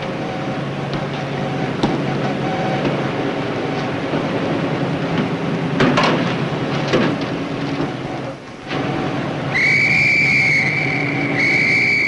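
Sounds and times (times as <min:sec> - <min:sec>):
noisy rumble and low hum: 0:00.0 - 0:12.0
falling whistle-like glides: 0:09.5 - 0:12.0
high-pitched whistle tone: 0:09.5 - 0:12.0.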